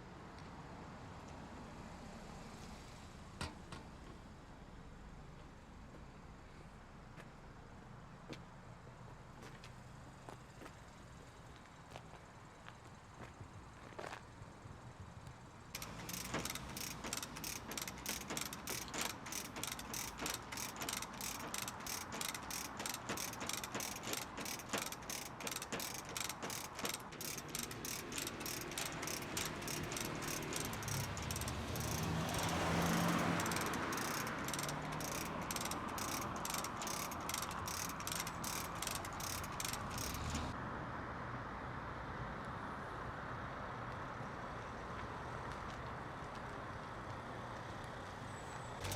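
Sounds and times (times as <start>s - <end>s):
chain hoist ratchet clicking: 15.8s - 40.6s.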